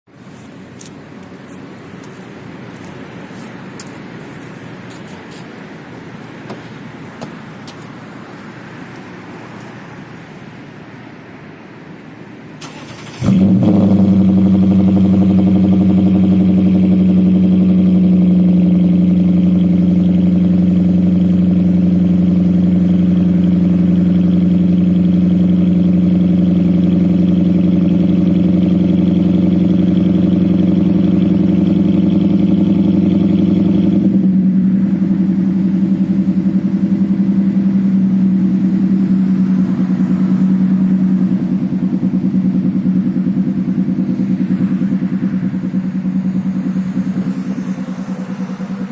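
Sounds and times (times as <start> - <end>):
car engine idling: 12.6 - 48.9.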